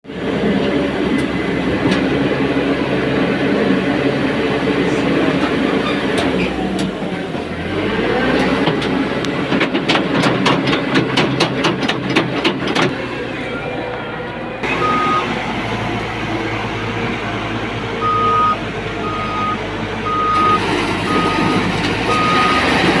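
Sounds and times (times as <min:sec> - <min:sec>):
diesel engine running: 0:00.0 - 0:23.0
clatter of knocks: 0:09.5 - 0:12.9.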